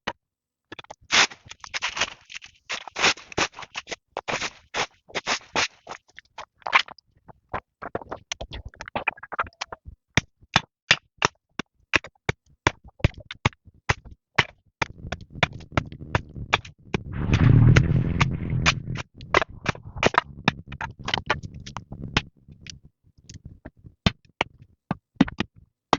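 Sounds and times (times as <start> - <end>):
rustling burst: 17.2 - 20.1.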